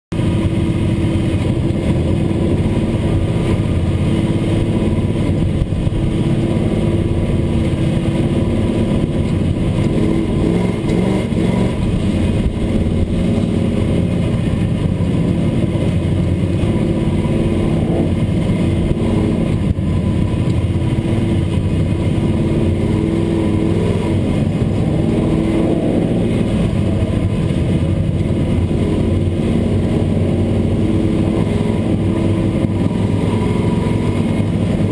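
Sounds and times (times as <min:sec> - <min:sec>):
truck engine running: 0:00.1 - 0:34.9.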